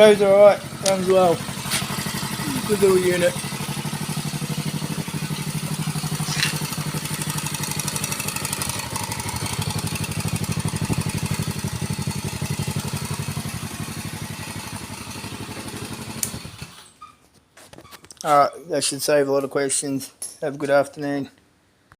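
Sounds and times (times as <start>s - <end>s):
quad bike engine running: 0.0s - 16.8s.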